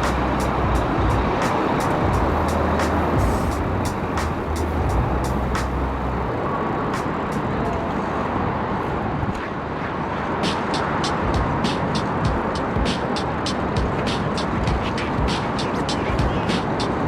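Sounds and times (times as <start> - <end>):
low hum: 0.0 - 6.8
road traffic: 0.0 - 17.0
wind rushing: 0.0 - 17.0.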